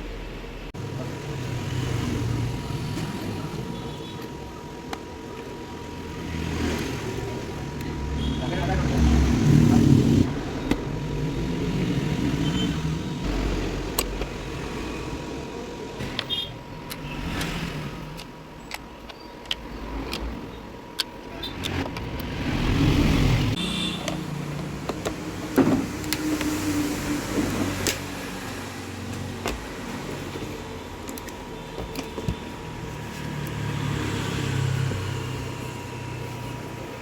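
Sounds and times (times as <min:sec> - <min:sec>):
sharp clicks and knocks: 0:24.0 - 0:26.6.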